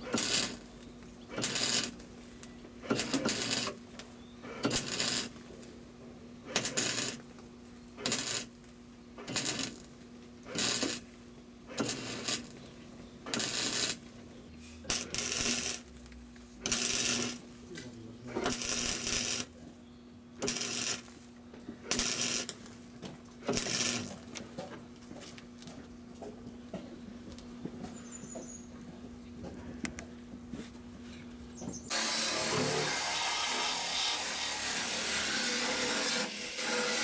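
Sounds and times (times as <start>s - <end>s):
welder crackling: 0.0s - 5.7s, 6.5s - 7.3s, 8.0s - 8.6s, 9.2s - 11.1s, 11.7s - 14.2s, 14.9s - 19.6s, 20.4s - 22.8s, 23.4s - 24.4s, 31.9s - 37.0s.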